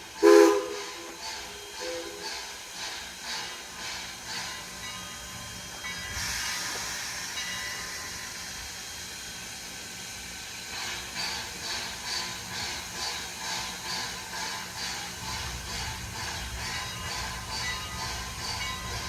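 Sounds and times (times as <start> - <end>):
loud hiss of steam: 0.0 - 19.0
steam locomotive exhaust chuffing: 0.0 - 19.0.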